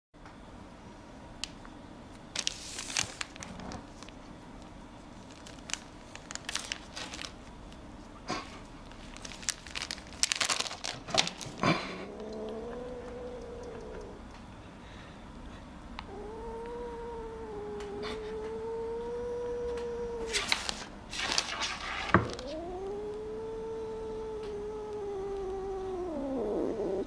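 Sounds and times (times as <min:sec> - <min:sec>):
plastic bag crinkling: 0:02.3 - 0:04.2, 0:05.2 - 0:07.8, 0:08.8 - 0:11.7, 0:20.3 - 0:22.5
cat yowling: 0:12.0 - 0:14.2, 0:16.0 - 0:20.5, 0:22.3 - 0:27.0.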